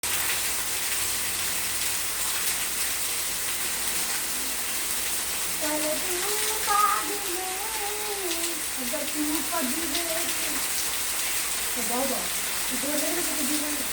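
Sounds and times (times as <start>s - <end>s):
heavy rain pattering: 0.0s - 13.9s
person speaking: 5.6s - 10.6s.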